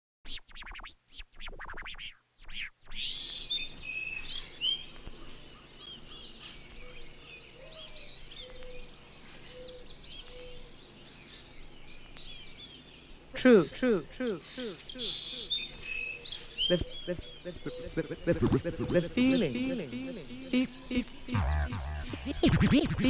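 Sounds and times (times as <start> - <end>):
birds chirping rapidly: 9.6 - 23.0
steady high-pitched tone: 16.7 - 23.0
scratchy stutter: 18.3 - 23.0.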